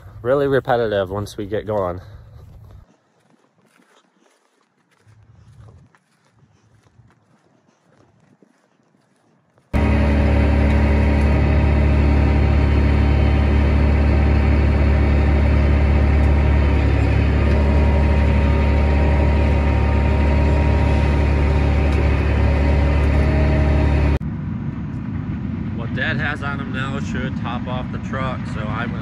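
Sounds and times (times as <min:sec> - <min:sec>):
tractor diesel engine droning: 0:09.8 - 0:29.0.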